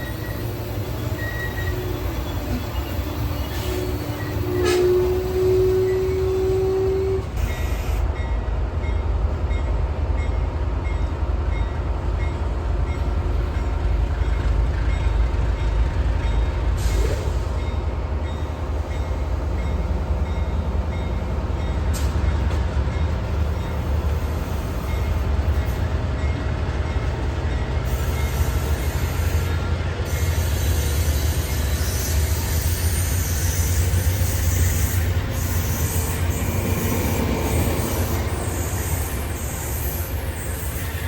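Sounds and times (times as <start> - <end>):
train rumbling past: 0.0 - 41.0
train horn: 1.1 - 8.0.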